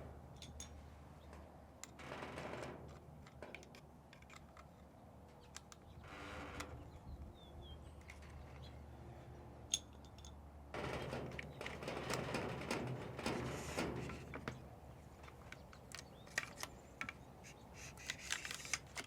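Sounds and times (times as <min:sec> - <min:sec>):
metal parts sliding and rubbing: 0:10.8 - 0:14.4, 0:17.4 - 0:19.0.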